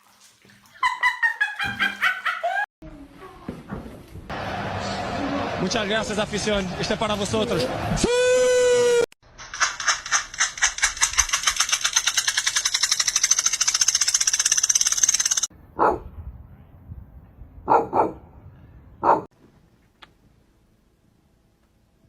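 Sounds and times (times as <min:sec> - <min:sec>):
fast clicking rattle: 0:09.4 - 0:15.5
dog barking: 0:15.8 - 0:16.1, 0:17.7 - 0:18.2, 0:19.0 - 0:19.3.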